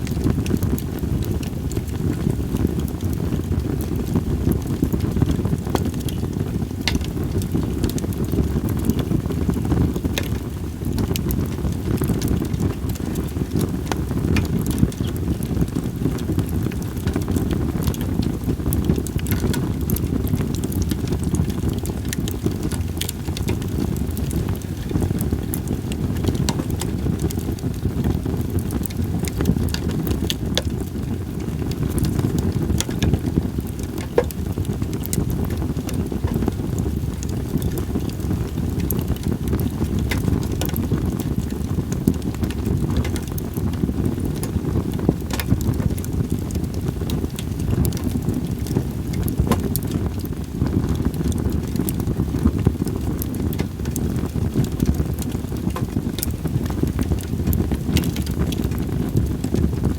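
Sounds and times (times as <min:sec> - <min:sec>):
firewood crackling in campfire: 0:00.0 - 0:59.9
wind rumble on microphone: 0:00.0 - 0:59.9.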